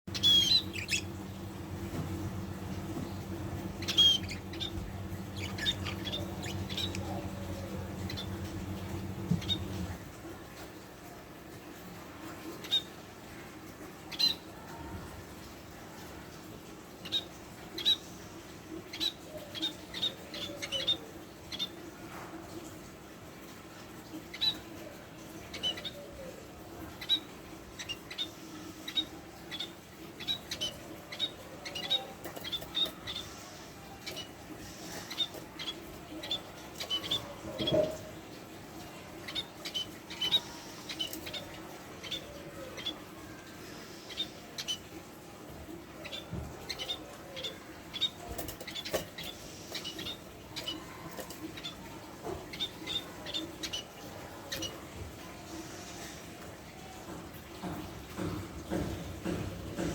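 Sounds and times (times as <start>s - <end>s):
budgerigar chirping: 0.1s - 1.1s, 3.7s - 7.4s
steady low hum: 0.1s - 10.1s.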